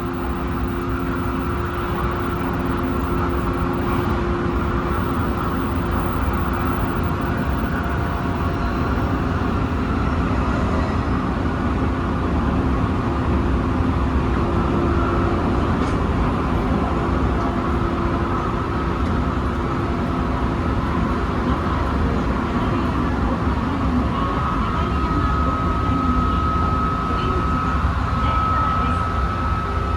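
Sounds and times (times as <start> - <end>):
faint steady hum: 0.0 - 10.1.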